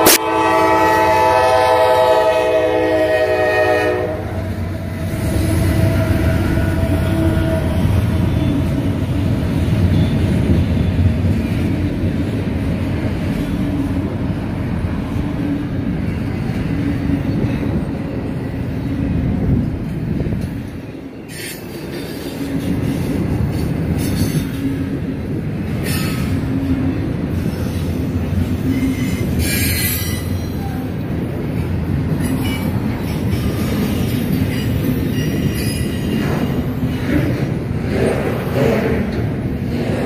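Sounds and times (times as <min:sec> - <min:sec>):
locomotive horn chord: 0:00.0 - 0:08.6
freight train rumbling past: 0:00.0 - 0:40.0.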